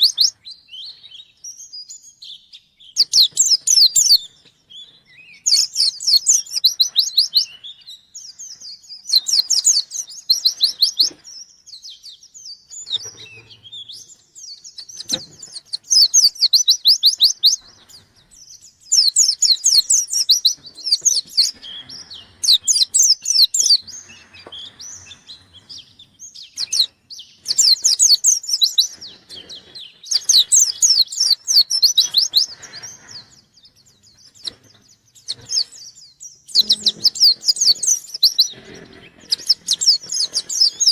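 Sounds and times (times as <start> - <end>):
bird twittering song: 0.0 - 40.9.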